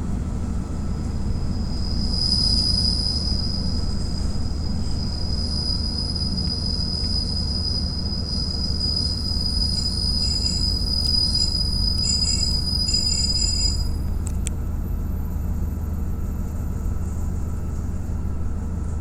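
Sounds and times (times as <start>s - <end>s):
railcar engine and wheels rumbling: 0.0s - 19.0s
high-pitched wheel squeal: 1.7s - 14.1s.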